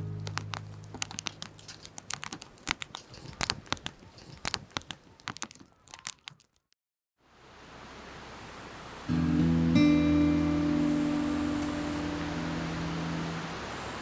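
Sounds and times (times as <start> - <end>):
campfire crackling and popping: 0.0 - 6.6.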